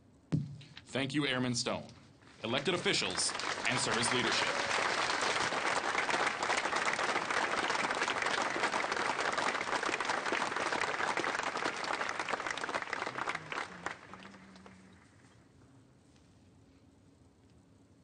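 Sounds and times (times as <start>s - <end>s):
audience applauding: 2.4s - 15.3s.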